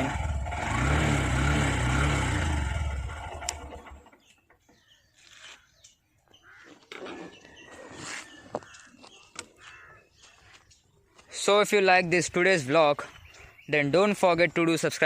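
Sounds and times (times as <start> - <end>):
motorcycle engine idling: 0.0 - 4.3
faint bird calls: 4.0 - 11.3.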